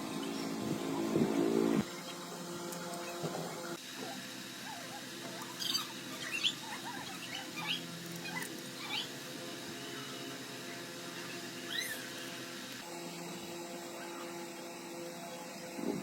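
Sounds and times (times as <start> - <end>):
engine running: 0.0 - 4.1
high chirps or squeaks: 11.6 - 12.3.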